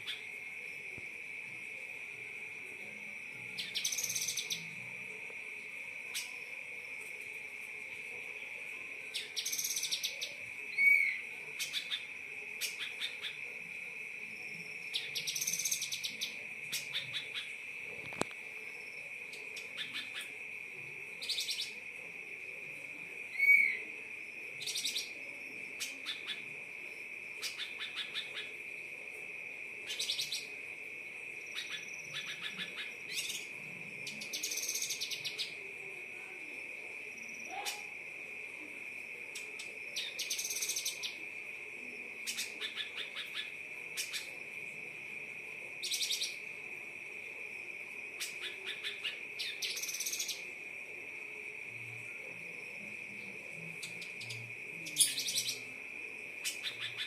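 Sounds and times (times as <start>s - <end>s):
loud whistled bird notes: 9.2s - 12.0s, 23.3s - 23.8s.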